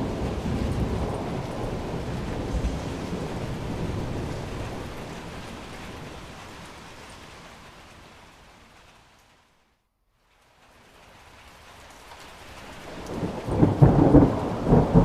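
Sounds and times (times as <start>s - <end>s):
low rumble of thunder: 0.0s - 7.1s, 12.8s - 15.0s
steady rain: 0.0s - 15.0s.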